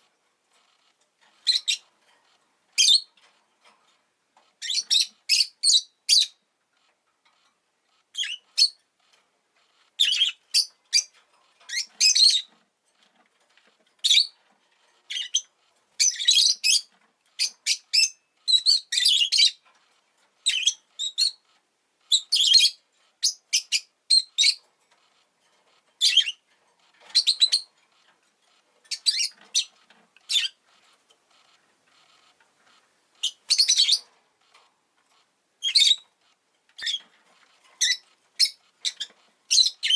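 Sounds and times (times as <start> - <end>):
lovebird chirping: 0.8 - 1.9, 2.8 - 3.1, 4.6 - 6.4, 8.1 - 8.8, 9.7 - 12.6, 14.0 - 14.4, 15.1 - 19.6, 20.4 - 21.5, 22.1 - 24.6, 26.0 - 26.4, 27.1 - 27.7, 28.8 - 30.7, 33.2 - 34.1, 35.6 - 36.1, 36.8 - 37.1, 37.8 - 39.9.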